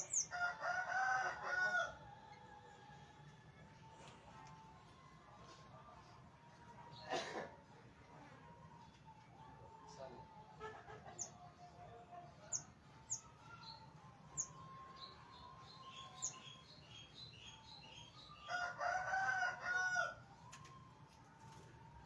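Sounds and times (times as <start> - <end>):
small birds chirping: 0.0 - 0.4, 12.4 - 18.5
rooster crowing: 0.3 - 2.0, 18.5 - 20.3.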